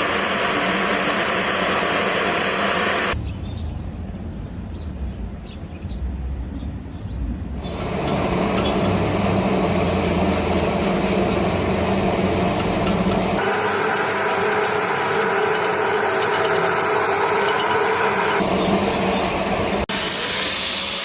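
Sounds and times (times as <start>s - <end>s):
welding arc crackling hiss: 0.0s - 3.2s, 7.6s - 21.0s.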